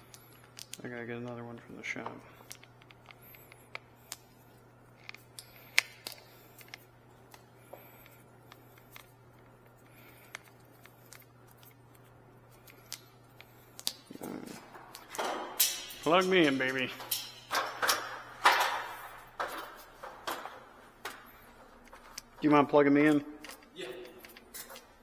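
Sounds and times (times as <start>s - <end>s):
steady low hum: 0.0s - 25.0s
tools clicking and tapping: 5.0s - 25.0s.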